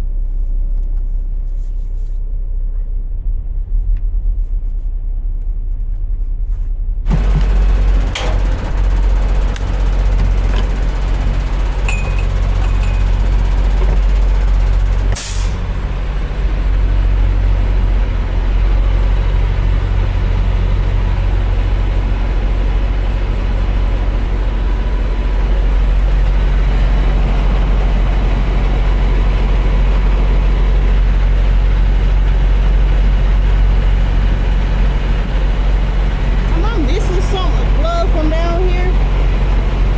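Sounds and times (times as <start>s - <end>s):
air brakes hissing: 7.1s - 16.0s
truck diesel engine running: 7.1s - 39.9s.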